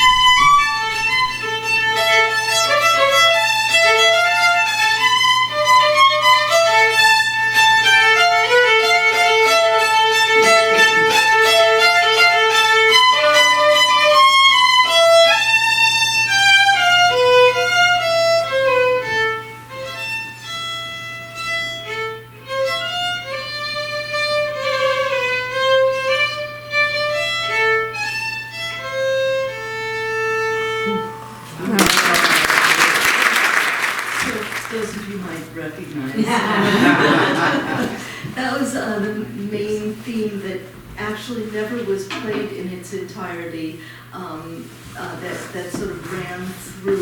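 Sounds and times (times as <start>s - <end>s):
solo violin melody: 0.0s - 31.4s.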